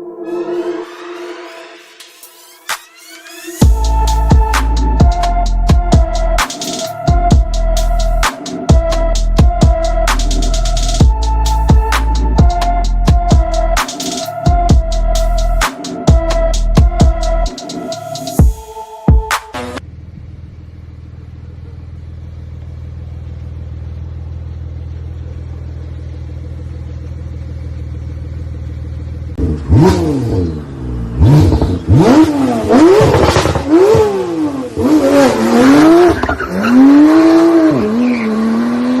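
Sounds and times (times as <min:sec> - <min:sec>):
sports car engine revving: 0:19.6 - 0:39.0.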